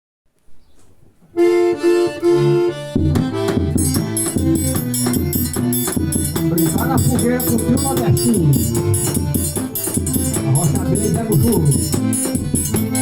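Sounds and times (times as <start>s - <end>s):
accordion melody: 1.2s - 13.0s
bass notes: 1.4s - 13.0s
fast high percussion beat: 3.0s - 13.0s.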